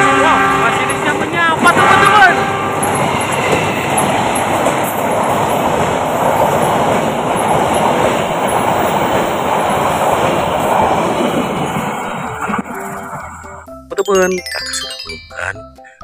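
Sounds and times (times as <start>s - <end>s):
train wheels rushing on rails: 0.7s - 13.2s.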